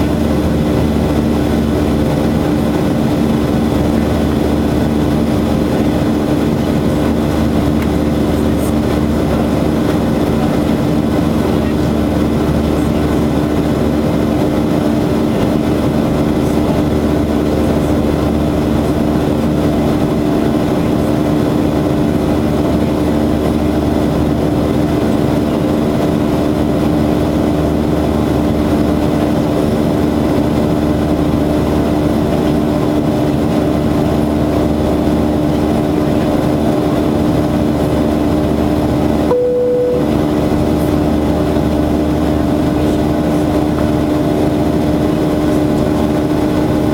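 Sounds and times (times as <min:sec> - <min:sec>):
jet engine drone: 0:00.0 - 0:46.9
low hums: 0:38.8 - 0:46.9
short single tone: 0:39.3 - 0:40.7.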